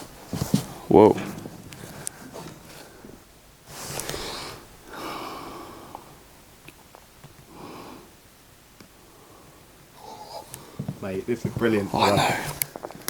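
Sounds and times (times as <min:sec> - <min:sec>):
breathy exhalations: 0:01.2 - 0:06.3, 0:07.5 - 0:08.2, 0:09.0 - 0:11.0, 0:11.8 - 0:13.0
faint ticks: 0:10.4 - 0:11.0.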